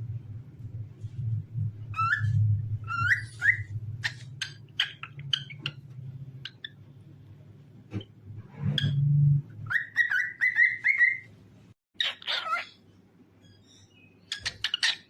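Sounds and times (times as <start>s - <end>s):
steady low hum: 0.0s - 2.9s
cockatiel whistling and chirping: 1.9s - 5.8s, 9.6s - 11.3s.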